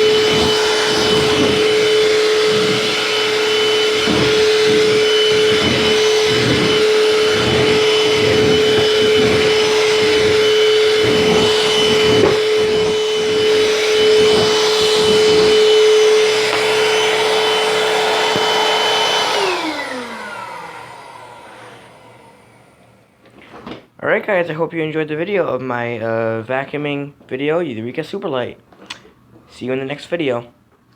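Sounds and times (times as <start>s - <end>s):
vacuum motor winding down: 0.0s - 23.0s
vacuum cleaner whining: 0.0s - 23.8s.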